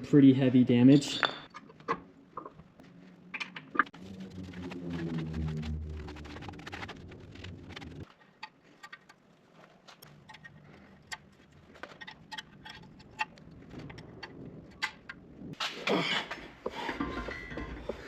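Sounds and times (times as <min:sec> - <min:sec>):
low hum: 0:02.6 - 0:08.1.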